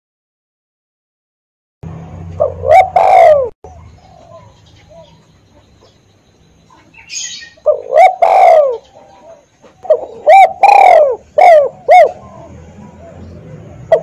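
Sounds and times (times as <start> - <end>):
dove cooing: 2.3 - 6.0, 6.7 - 14.0.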